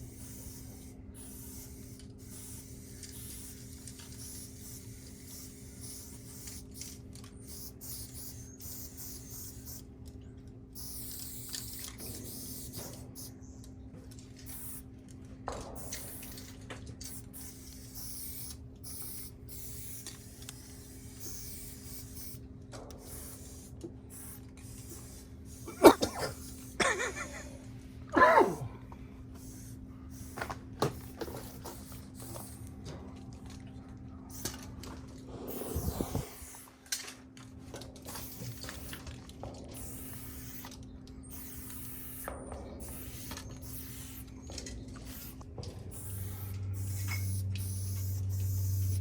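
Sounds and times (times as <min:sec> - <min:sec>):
spray paint can hissing: 0:00.0 - 0:09.9, 0:10.8 - 0:13.3, 0:14.4 - 0:14.8, 0:15.8 - 0:22.4, 0:23.0 - 0:27.2, 0:29.4 - 0:32.7, 0:34.3 - 0:34.6, 0:35.3 - 0:36.8, 0:38.0 - 0:39.1, 0:39.8 - 0:49.0
steady low hum: 0:00.0 - 0:49.0.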